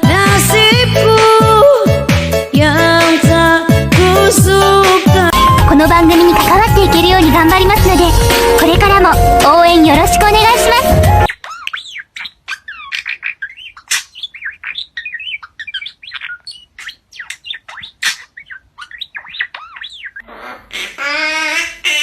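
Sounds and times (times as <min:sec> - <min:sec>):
person singing: 0:00.0 - 0:08.6
bird chirping and squawking: 0:11.2 - 0:22.0.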